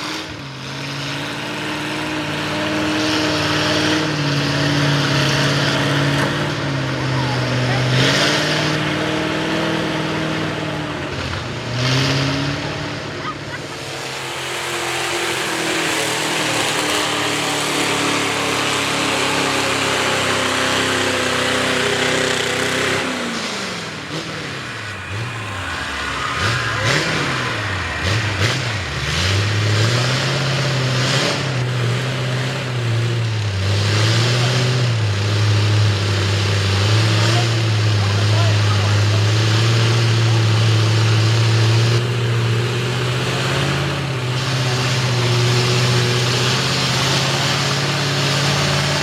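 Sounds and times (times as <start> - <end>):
truck engine revving hard: 0.0 - 49.0.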